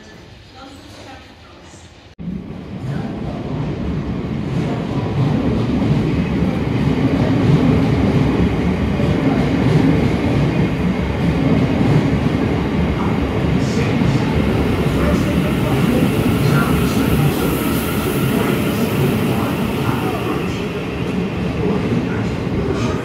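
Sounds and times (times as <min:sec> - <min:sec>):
passenger train rumbling: 0:00.0 - 0:23.0.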